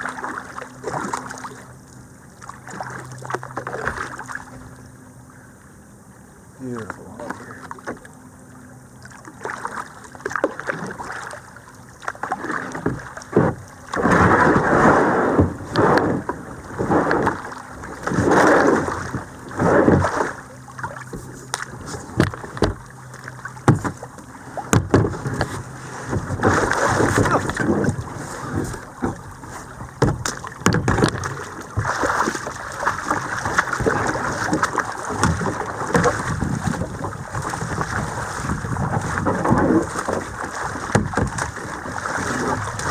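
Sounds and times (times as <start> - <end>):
paddle splashing in water: 0.0 - 4.8, 6.8 - 42.9
rushing water: 9.0 - 42.9
paddle knocks: 12.2 - 42.9.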